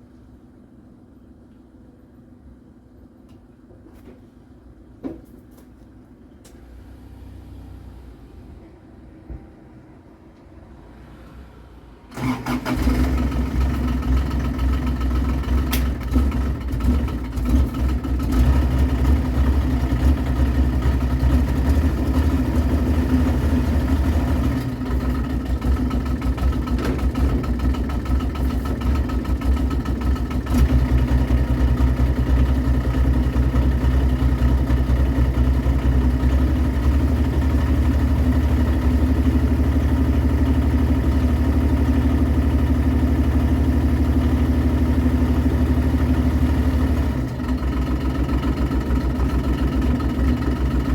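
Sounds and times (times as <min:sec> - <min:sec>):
diesel engine starting and idling: 0:10.9 - 0:50.9.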